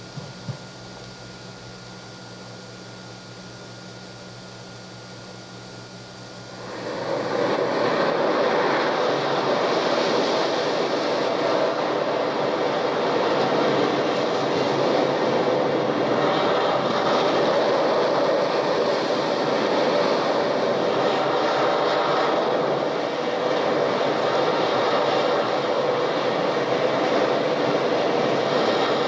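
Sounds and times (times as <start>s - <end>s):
low hum: 0.0s - 12.2s
tape hiss: 0.0s - 29.0s.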